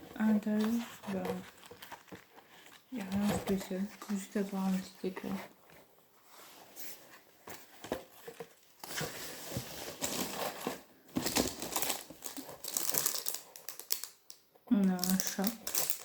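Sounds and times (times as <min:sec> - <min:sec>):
packaging rustling and crinkling: 0:00.0 - 0:16.0.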